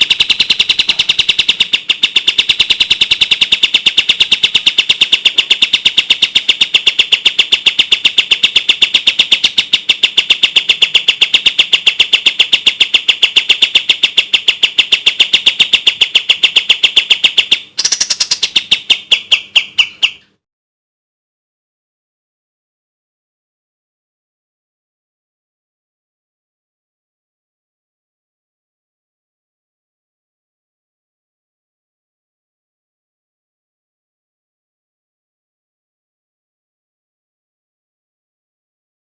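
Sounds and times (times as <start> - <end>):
bird singing rapid high notes: 0.0 - 20.4.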